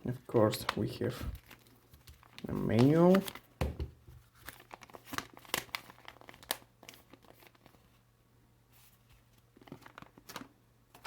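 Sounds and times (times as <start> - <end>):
paper crinkling and rustling: 0.1 - 8.0, 8.7 - 11.0
sharp paper crackles: 0.3 - 3.5, 4.3 - 8.0.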